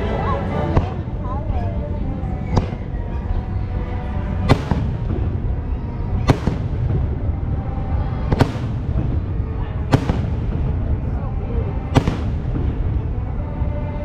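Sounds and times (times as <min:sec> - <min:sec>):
low rumble of fireworks: 0:00.0 - 0:14.0
fireworks bangs: 0:02.4 - 0:03.5, 0:04.2 - 0:13.7.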